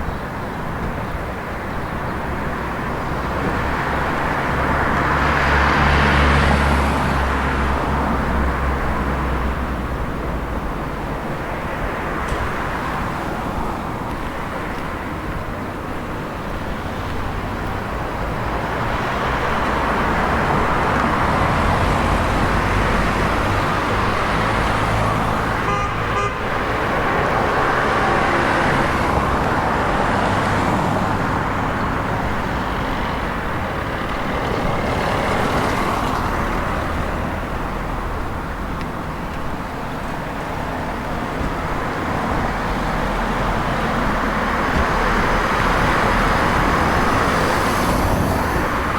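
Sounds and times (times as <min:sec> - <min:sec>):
road traffic passing: 0:00.0 - 0:48.9
car horn toot: 0:25.6 - 0:26.7.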